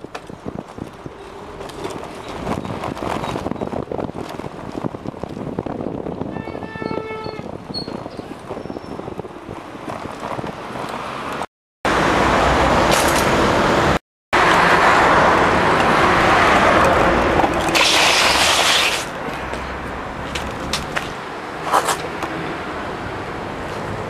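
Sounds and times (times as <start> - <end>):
street traffic: 0.0 - 24.0
wind rushing: 0.3 - 10.8.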